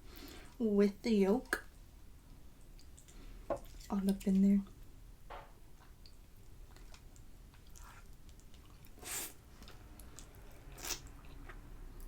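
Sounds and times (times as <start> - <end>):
wet chewing: 5.8 - 12.0.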